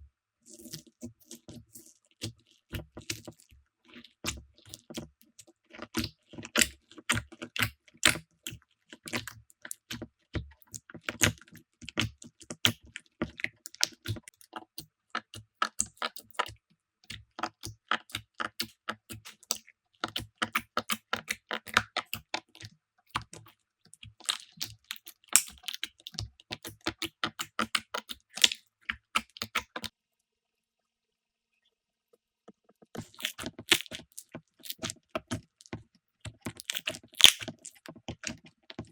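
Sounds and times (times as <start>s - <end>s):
slime crackling and popping: 24.2s - 29.8s, 33.0s - 35.4s, 36.3s - 38.9s.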